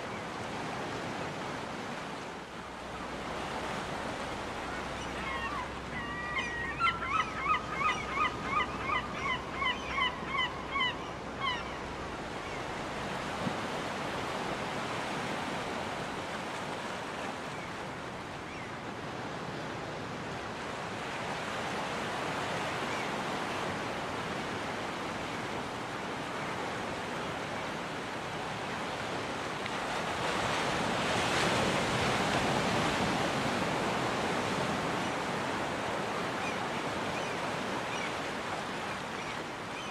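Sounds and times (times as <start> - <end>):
surf washing: 0.0 - 39.9
gull calling: 4.6 - 11.8.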